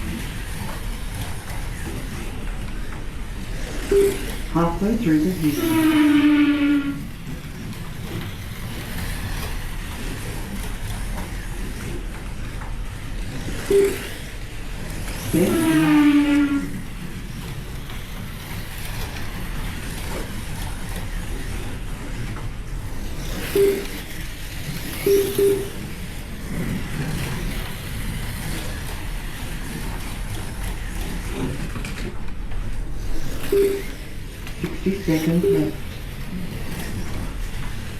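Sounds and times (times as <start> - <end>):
slot cars racing: 0.0 - 37.9
short electronic beeps: 3.9 - 4.4, 13.7 - 14.1, 23.6 - 24.0, 25.0 - 25.8, 33.5 - 34.0, 34.9 - 35.8.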